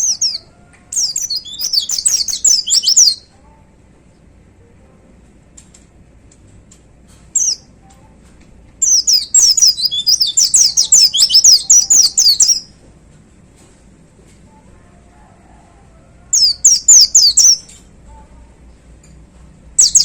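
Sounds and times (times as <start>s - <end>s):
bird singing rapid high notes: 1.0s - 3.3s, 8.8s - 12.6s, 16.4s - 17.7s, 19.8s - 20.0s.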